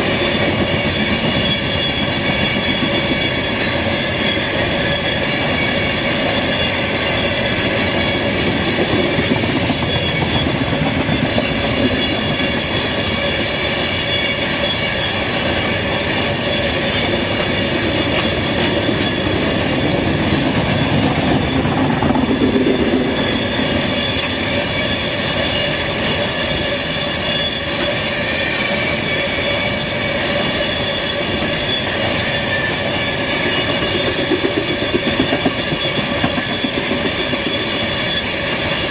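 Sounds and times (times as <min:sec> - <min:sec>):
high squeal: 0:00.0 - 0:38.9
train wheels rumbling on rails: 0:00.0 - 0:38.9.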